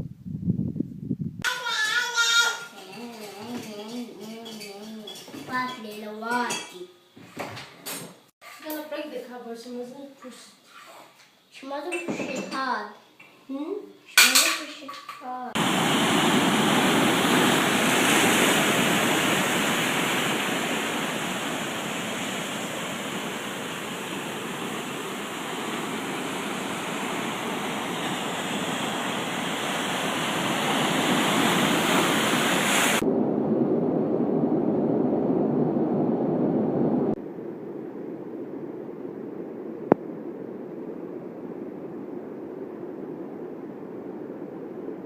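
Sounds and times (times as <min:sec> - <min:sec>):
waterfall rushing: 0:15.6 - 0:33.0.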